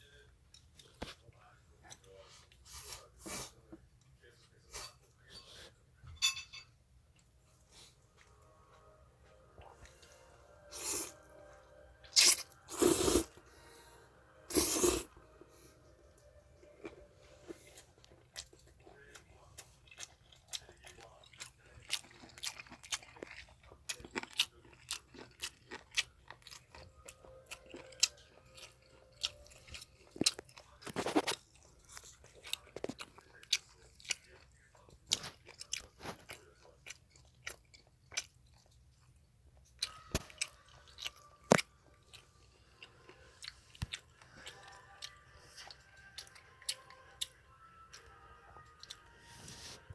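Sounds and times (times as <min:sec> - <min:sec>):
chewing noodles close up: 0:16.6 - 0:49.8.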